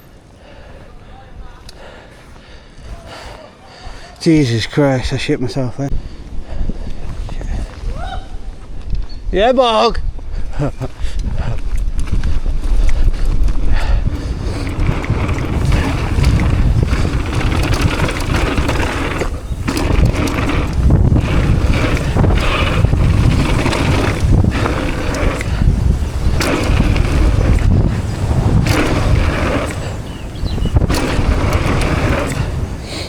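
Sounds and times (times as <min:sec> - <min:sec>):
bike tyres rolling on dirt: 0:00.0 - 0:05.4, 0:06.1 - 0:33.0
wind buffeting microphone: 0:00.0 - 0:33.0
bike knocks and rattles: 0:12.0 - 0:33.0.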